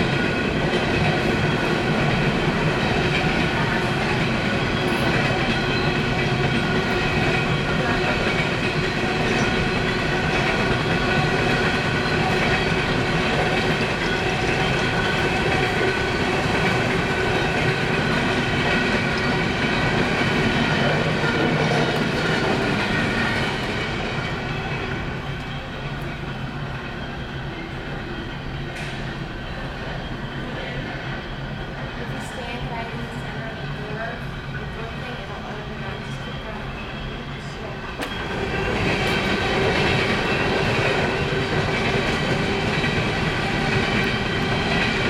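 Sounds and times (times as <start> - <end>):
freight cars rolling on rails: 0.0 - 45.0.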